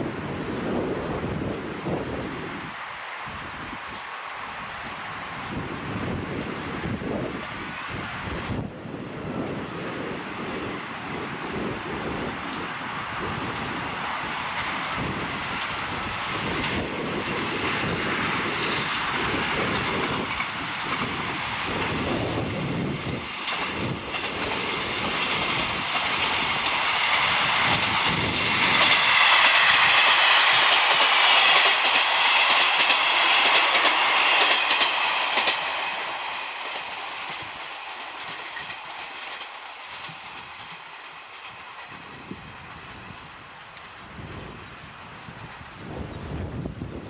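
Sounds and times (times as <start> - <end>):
train passing at speed: 0.0 - 47.0
wheels clattering over rail joints: 14.6 - 43.1.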